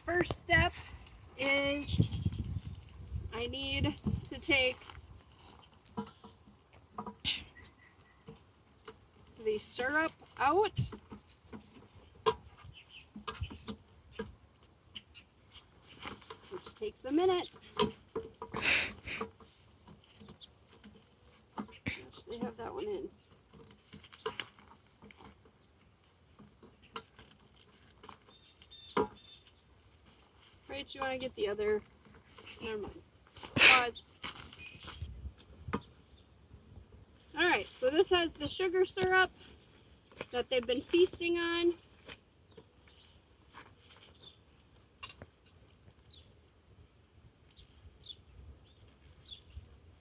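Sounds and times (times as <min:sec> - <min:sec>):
faint high bird chirps: 0:07.2 - 0:08.4, 0:28.3 - 0:29.7.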